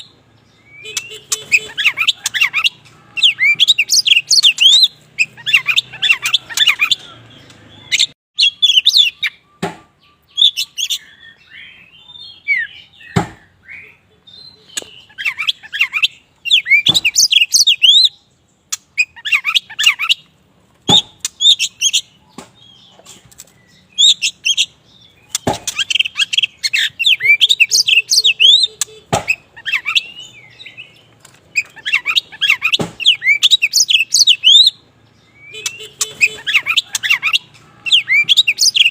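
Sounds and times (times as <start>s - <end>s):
bird singing chirps and whistles: 0.0s - 20.3s, 20.9s - 23.0s, 23.6s - 38.9s.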